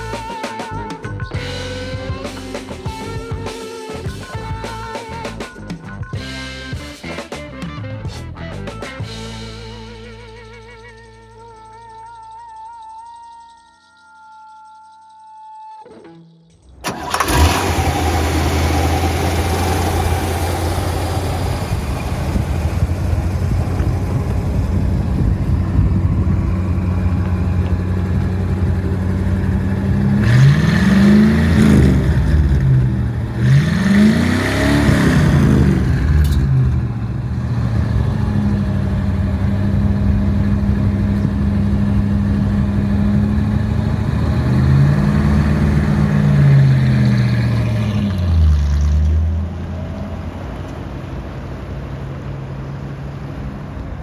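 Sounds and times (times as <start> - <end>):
car engine idling and revving: 16.8 - 54.0.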